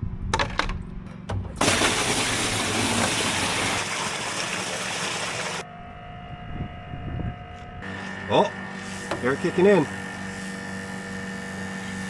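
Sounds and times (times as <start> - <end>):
water gushing from pump line: 1.6 - 5.6.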